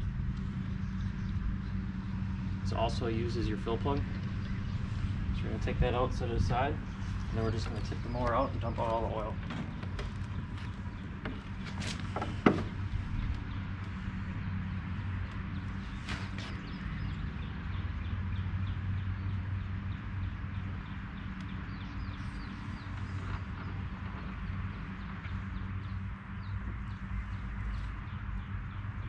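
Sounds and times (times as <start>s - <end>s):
steady low hum: 0.0s - 29.0s
lawnmower knocking and clunking: 7.5s - 13.4s.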